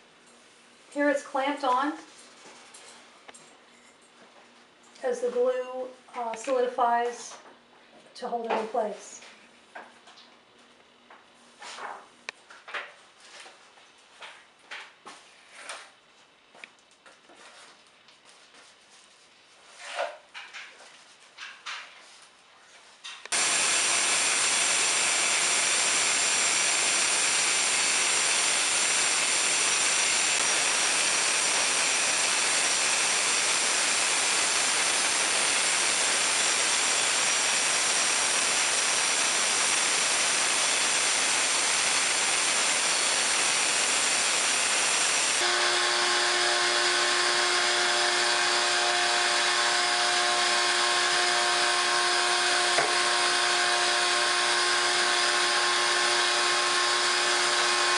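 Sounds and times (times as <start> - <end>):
power tool whining: 23.3 - 57.9.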